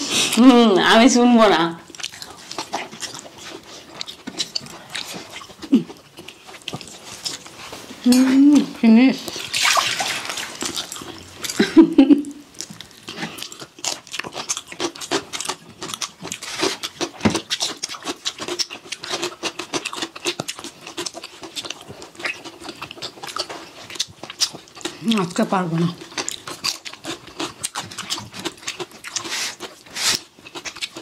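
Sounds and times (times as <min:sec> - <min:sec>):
people chewing and smacking: 0:01.8 - 0:31.0.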